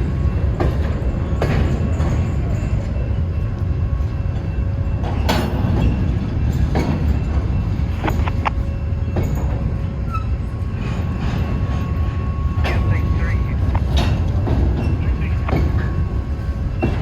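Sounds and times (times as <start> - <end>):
freight train cars rumbling: 0.0 - 17.0
wheel squeal: 10.1 - 11.0
wheels and couplers clanking: 13.6 - 17.0.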